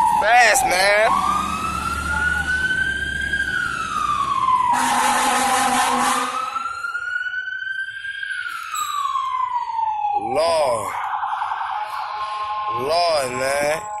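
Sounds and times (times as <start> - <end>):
fire engine siren wailing: 0.0 - 14.0
fire truck horn blast: 4.7 - 6.6.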